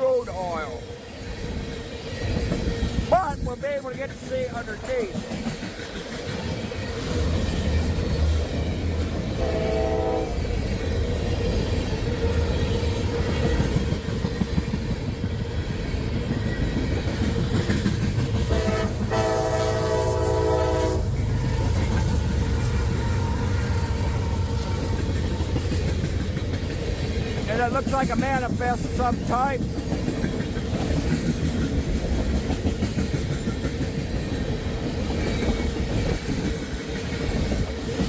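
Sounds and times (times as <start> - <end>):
freight train rumbling past: 0.0 - 38.0
locomotive air horn: 9.4 - 10.4, 18.5 - 21.8.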